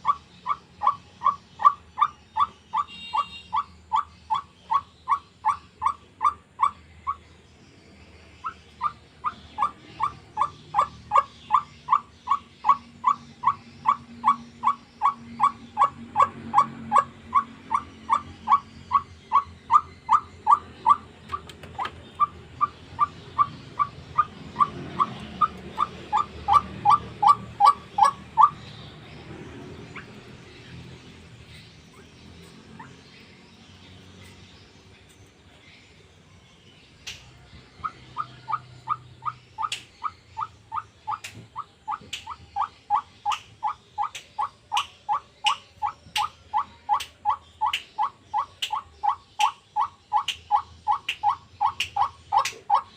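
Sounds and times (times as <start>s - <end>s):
waterhen calling harsh notes: 0.0s - 7.2s, 8.4s - 21.4s, 22.2s - 28.8s.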